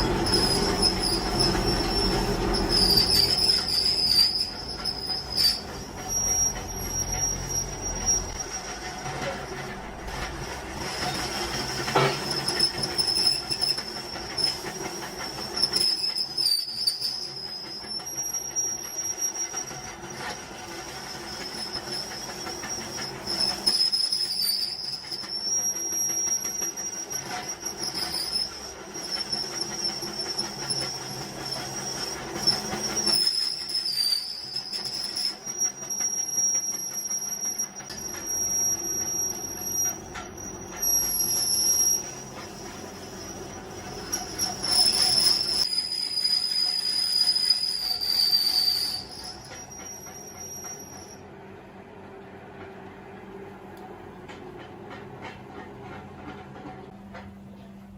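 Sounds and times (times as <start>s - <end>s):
harsh metallic scraping: 0.0s - 17.7s.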